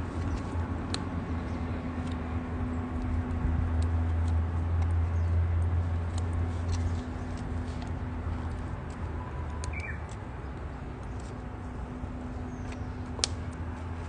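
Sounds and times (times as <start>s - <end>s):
campfire crackling and popping: 12.7s - 13.6s.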